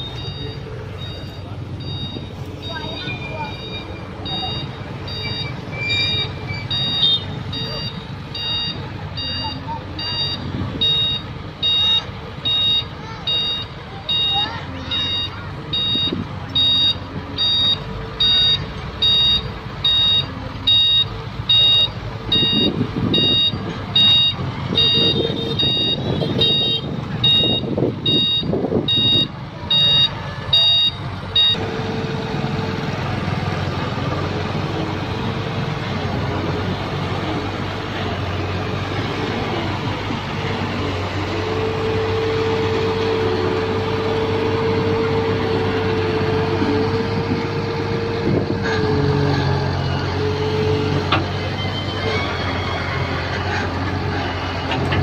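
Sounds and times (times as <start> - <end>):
warning alarm beeping: 0.0 - 31.6
excavator engine running: 0.0 - 55.0.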